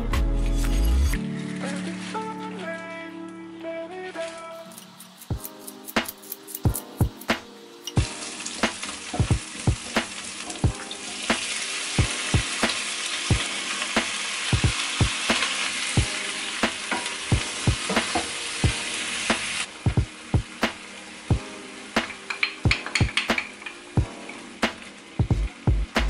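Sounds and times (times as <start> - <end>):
background music with steady beat: 0.0 - 26.0
food sizzling in hot oil: 4.8 - 25.9.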